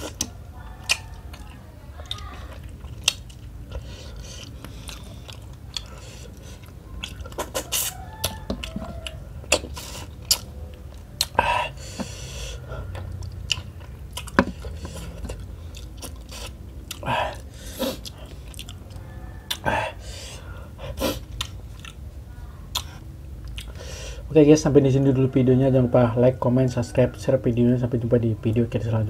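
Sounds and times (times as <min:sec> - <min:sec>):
chewing and wet lip-smacking: 0:00.0 - 0:23.9
sharp mouth clicks: 0:06.6 - 0:08.7.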